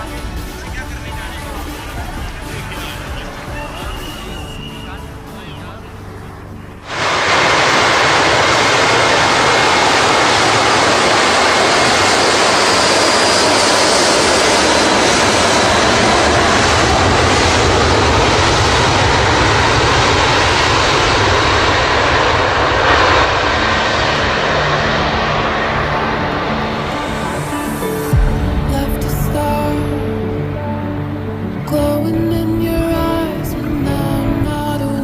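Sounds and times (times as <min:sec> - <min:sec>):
jet engines roaring: 0:00.0 - 0:34.8.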